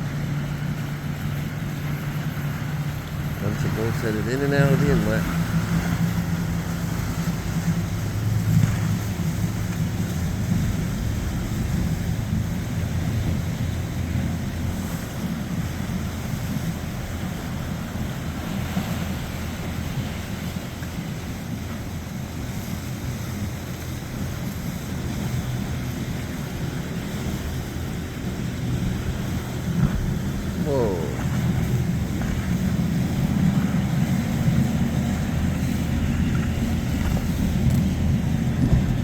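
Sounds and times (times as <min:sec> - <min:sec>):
motorboat engine humming: 0:00.0 - 0:39.0
wind noise on microphone: 0:21.3 - 0:39.0.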